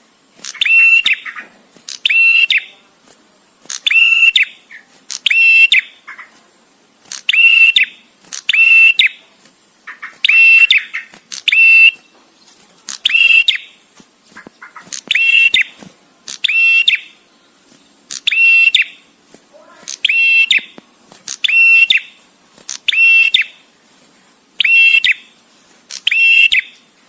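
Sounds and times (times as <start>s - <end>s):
bird calling in stuttering phrases: 9.8s - 12.0s, 14.4s - 15.8s, 19.6s - 22.1s.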